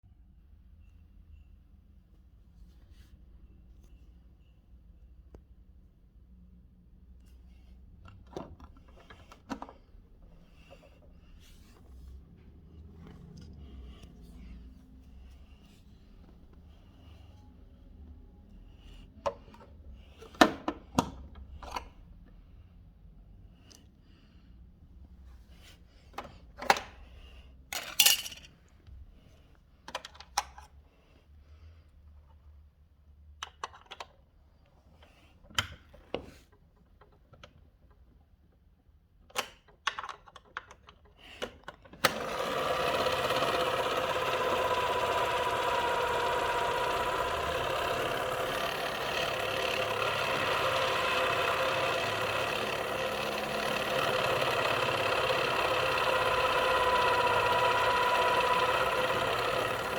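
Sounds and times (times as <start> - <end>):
small motor whirring: 42.1 - 59.9.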